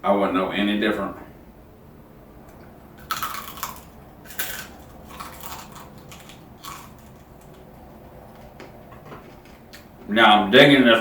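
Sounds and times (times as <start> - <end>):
crunching crispy pork skin: 3.0 - 9.9.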